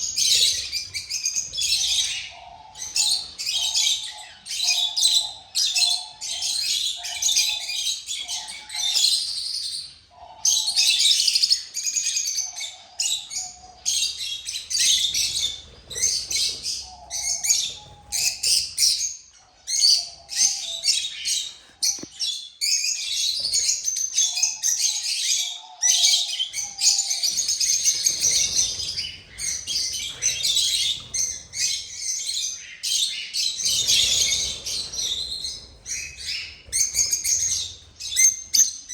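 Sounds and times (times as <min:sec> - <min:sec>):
cage birds chirping: 0:00.0 - 0:38.9.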